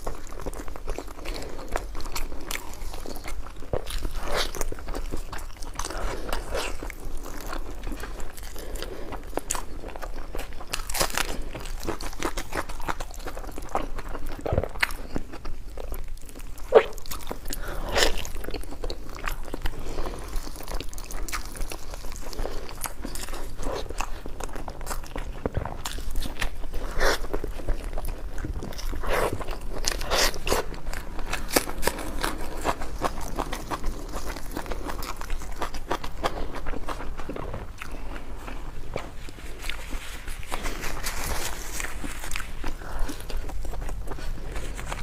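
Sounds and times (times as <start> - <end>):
person crunching food: 0.0 - 45.0.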